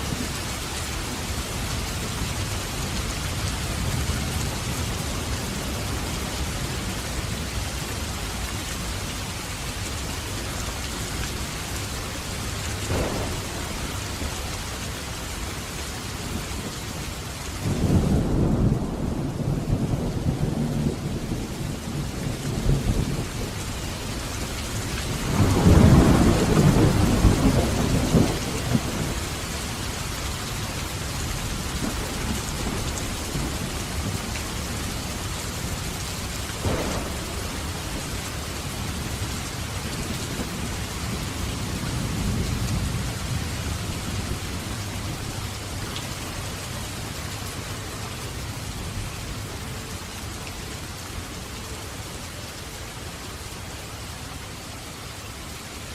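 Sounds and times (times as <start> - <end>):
heavy rain: 0.0 - 55.9
thunder rumbling: 12.7 - 15.1, 17.6 - 29.9, 30.9 - 46.5
sharp thunder crack: 12.9 - 14.1, 36.6 - 38.2.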